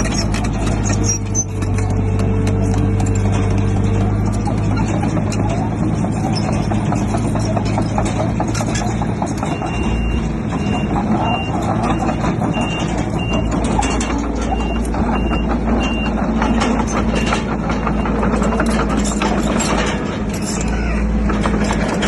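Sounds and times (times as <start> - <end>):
heavy diesel machinery running: 0.0 - 22.0
metal clanking and clatter: 0.0 - 22.0
reversing alarm beeping: 9.4 - 18.9.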